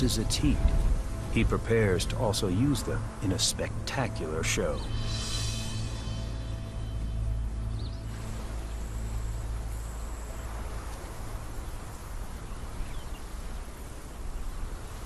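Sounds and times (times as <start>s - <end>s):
outdoor natural ambience: 0.0s - 15.0s
high-pitched insect whine: 4.8s - 12.2s.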